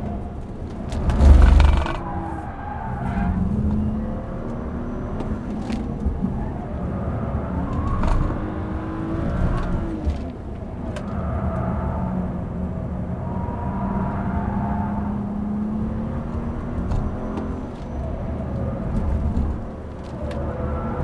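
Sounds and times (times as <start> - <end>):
car engine accelerating: 0.0 - 21.0
loud thump with rumble: 1.0 - 2.0.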